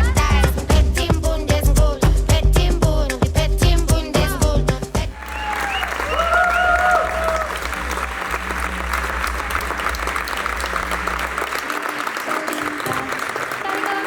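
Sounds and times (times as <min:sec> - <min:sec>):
audience applauding: 0:04.9 - 0:14.0
low bass tone of music: 0:06.8 - 0:11.5.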